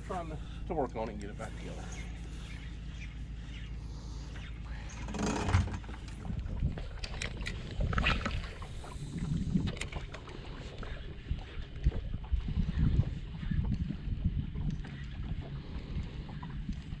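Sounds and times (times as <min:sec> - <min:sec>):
water noise: 0:00.0 - 0:17.0
wind noise: 0:06.0 - 0:17.0.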